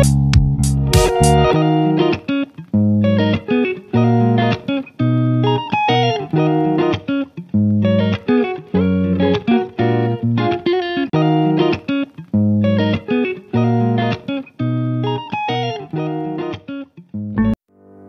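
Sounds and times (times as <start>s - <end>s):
bass: 0.0s - 1.6s, 7.6s - 10.6s, 17.2s - 17.6s
plucked electric guitar: 0.0s - 18.0s.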